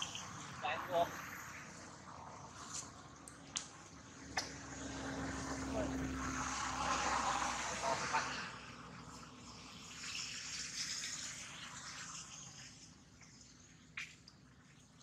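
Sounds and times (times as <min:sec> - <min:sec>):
water running and splashing: 0:05.2 - 0:15.0.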